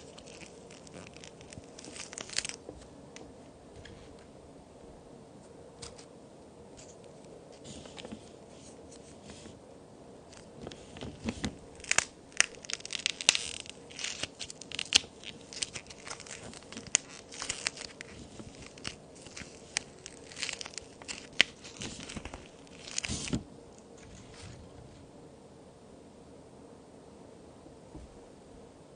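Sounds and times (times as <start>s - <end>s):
toy cookies cracking and crunching: 0.0s - 2.7s, 10.3s - 23.3s.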